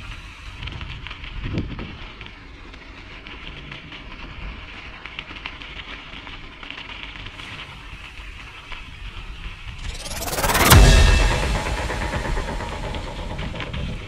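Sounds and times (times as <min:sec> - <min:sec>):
low rumble: 0:09.8 - 0:14.0.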